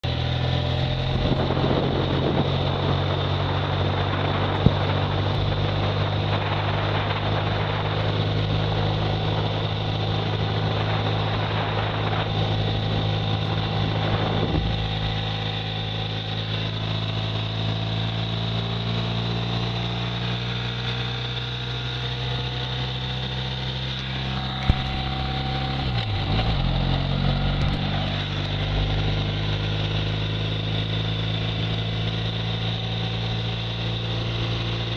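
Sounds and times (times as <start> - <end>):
motorcycle engine running: 0.0 - 34.9
wind rushing over microphone: 0.2 - 18.0, 23.9 - 29.8.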